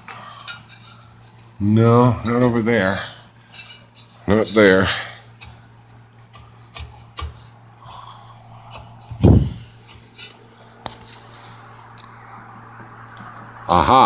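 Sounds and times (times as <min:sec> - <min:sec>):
steady low hum: 0:00.0 - 0:14.0
hands rubbing on sheet metal: 0:02.4 - 0:07.7, 0:08.5 - 0:10.4
low thump: 0:09.1 - 0:09.6.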